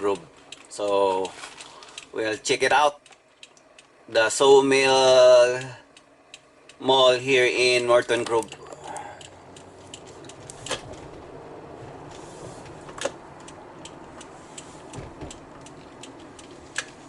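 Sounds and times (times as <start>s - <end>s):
rapid faint ticks: 0.0s - 4.4s, 5.1s - 6.9s, 8.1s - 10.8s, 11.8s - 17.0s
sharp clicks: 3.0s - 4.0s, 8.2s - 10.9s, 12.9s - 17.0s
vehicle running noise: 3.0s - 17.0s.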